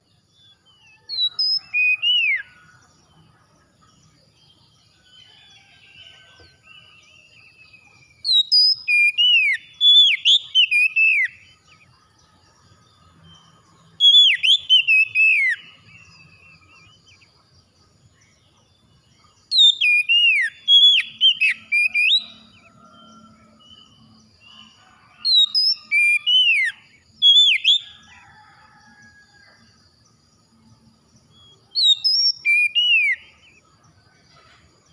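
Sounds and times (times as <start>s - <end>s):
bird whistling song phrases: 0.8s - 2.6s, 6.8s - 11.4s, 14.0s - 17.0s, 19.5s - 23.1s, 25.2s - 28.0s, 31.4s - 33.4s.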